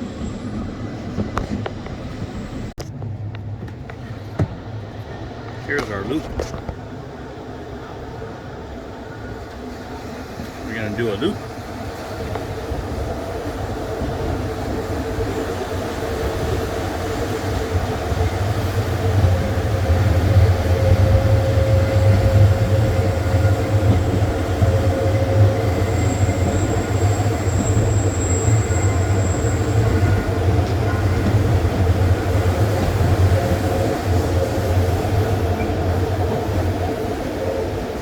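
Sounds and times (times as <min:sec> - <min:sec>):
train wheels rumbling on rails: 0:00.0 - 0:38.0
high wheel squeal: 0:24.0 - 0:31.2.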